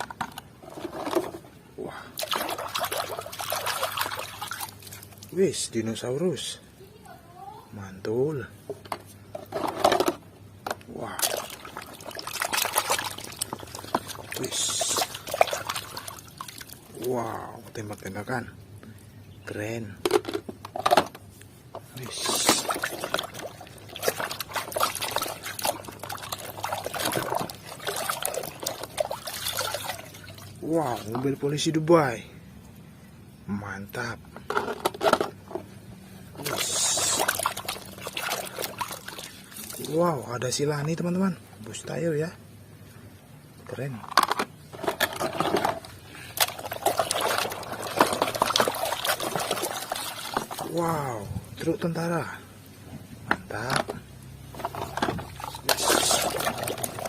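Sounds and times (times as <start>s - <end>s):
small splashes: 1.8s - 5.4s, 10.9s - 17.4s, 21.9s - 31.4s, 36.1s - 40.2s, 44.6s - 51.2s, 53.5s - 57.0s.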